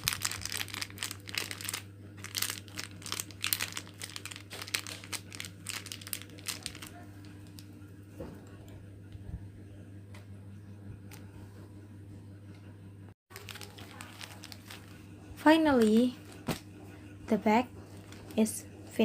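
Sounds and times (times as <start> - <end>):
wrappers crinkling: 0.0 - 7.7, 13.3 - 15.0, 15.7 - 16.6, 18.0 - 18.5
steady low hum: 0.0 - 19.0.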